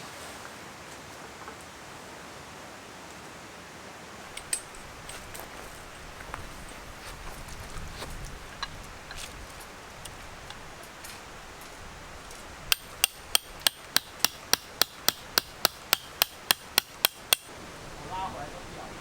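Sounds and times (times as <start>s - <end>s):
hammer striking: 12.7s - 17.5s.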